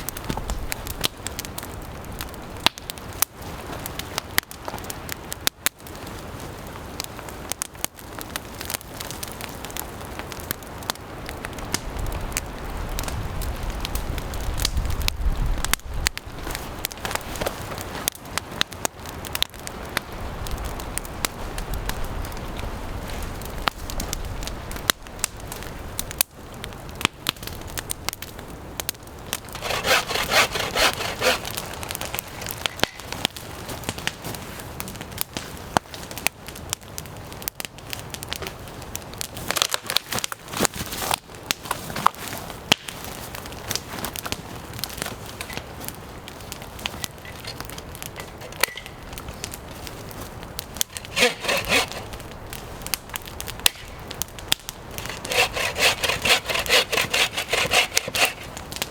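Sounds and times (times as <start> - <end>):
campfire crackling: 0.0 - 58.9
scratchy rubbing noise: 51.0 - 52.1, 55.0 - 58.5.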